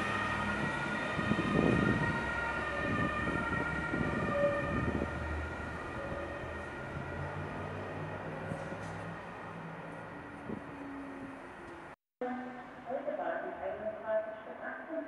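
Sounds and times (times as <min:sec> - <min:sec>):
electric train whining: 0:00.0 - 0:12.0
train rumbling: 0:00.0 - 0:12.0.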